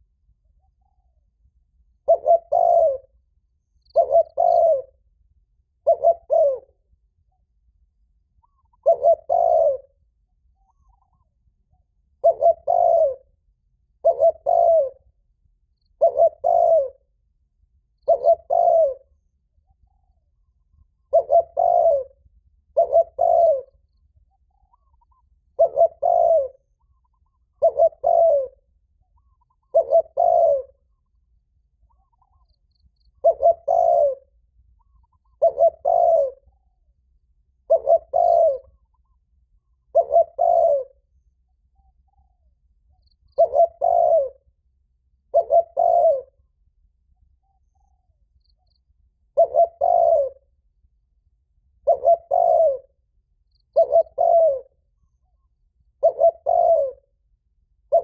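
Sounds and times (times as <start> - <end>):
dove cooing: 2.0 - 3.2, 3.9 - 5.0, 5.8 - 6.8, 8.4 - 10.0, 12.2 - 13.3, 14.0 - 15.1, 16.0 - 17.1, 18.0 - 19.1, 20.0 - 23.9, 24.6 - 31.0, 31.9 - 36.8, 37.6 - 39.2, 39.8 - 41.1, 43.2 - 44.5, 45.2 - 46.4, 49.2 - 50.5, 51.8 - 53.0, 53.7 - 55.0, 55.9 - 57.1, 57.8 - 58.0.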